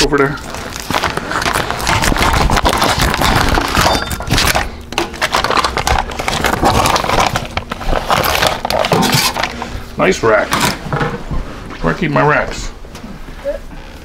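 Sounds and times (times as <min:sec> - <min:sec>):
kitchen items knocking and crinkling: 0:00.0 - 0:09.7, 0:10.5 - 0:11.4.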